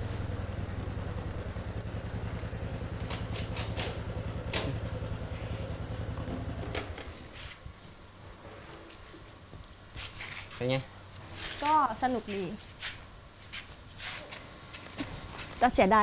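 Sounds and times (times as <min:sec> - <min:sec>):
small motorcycle engine running: 0:00.0 - 0:07.3.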